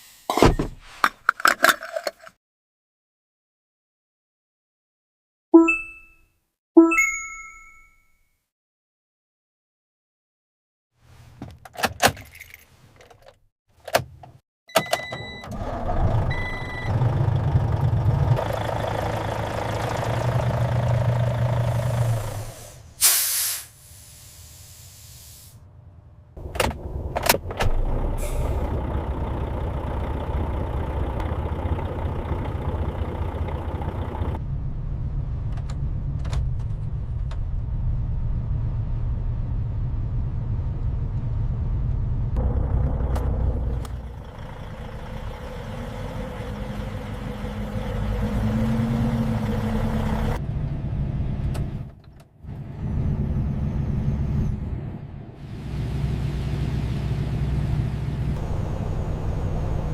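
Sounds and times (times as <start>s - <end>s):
truck engine running: 15.6s - 22.8s, 25.7s - 38.5s, 39.2s - 51.9s, 52.5s - 59.9s
air brakes hiss: 21.8s - 25.6s, 28.2s - 28.7s.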